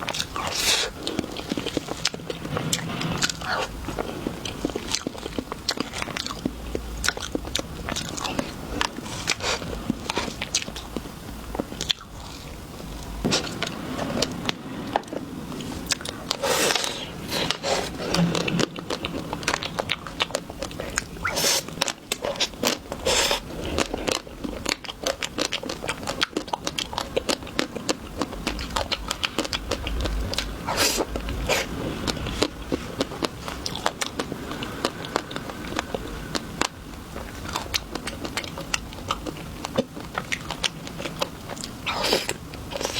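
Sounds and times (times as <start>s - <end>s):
chewing and crunching: 0.0s - 42.9s.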